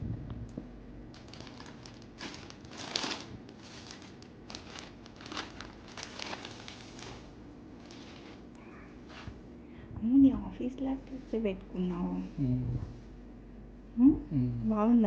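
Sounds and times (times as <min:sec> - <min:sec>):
packaging crinkling and rustling: 0:01.1 - 0:09.4.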